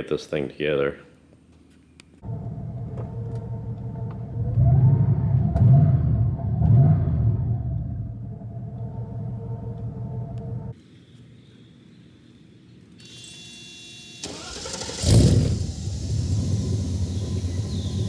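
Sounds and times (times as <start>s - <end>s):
car engine running: 2.2s - 10.8s, 14.2s - 18.0s
engine idling: 2.2s - 10.8s, 13.8s - 18.0s
engine starting burst: 13.0s - 18.0s.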